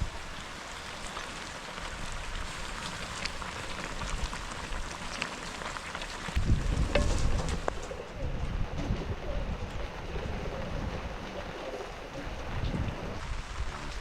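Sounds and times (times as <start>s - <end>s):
rain shower hissing: 0.0s - 14.0s
raindrop taps: 2.8s - 11.5s.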